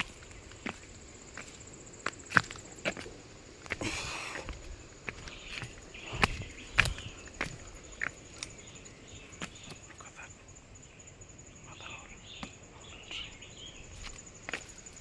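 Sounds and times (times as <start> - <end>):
footsteps on trail: 0.0 - 10.2, 13.2 - 15.0
insect trill: 0.0 - 15.0
dry twigs snapping and crunching: 4.5 - 8.6.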